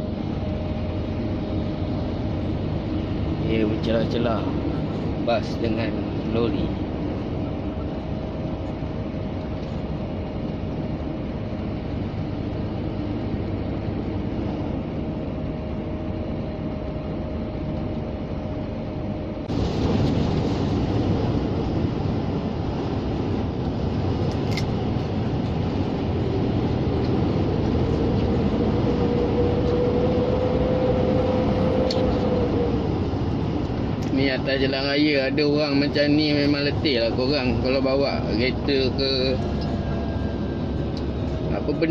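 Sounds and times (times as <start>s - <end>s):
diesel engine and road noise: 0.0s - 41.9s
faint engine tone: 23.8s - 41.9s.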